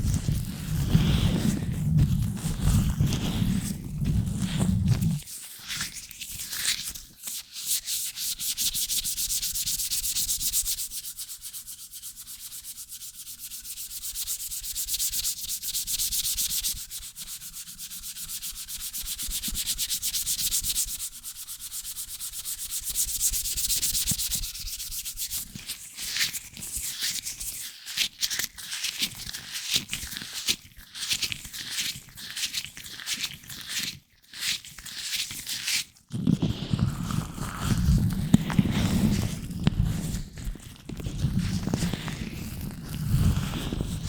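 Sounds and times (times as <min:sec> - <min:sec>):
gloved hands rubbing microphone: 0:00.0 - 0:06.9, 0:15.7 - 0:25.8, 0:36.0 - 0:44.0.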